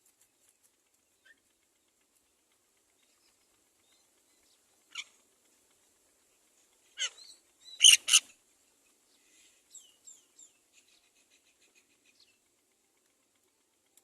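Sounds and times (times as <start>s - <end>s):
myna bird harsh calls: 7.0s - 8.4s.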